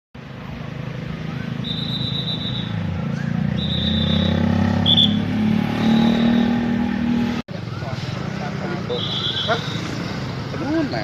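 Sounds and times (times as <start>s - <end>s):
high whistle tones: 1.3s - 6.8s.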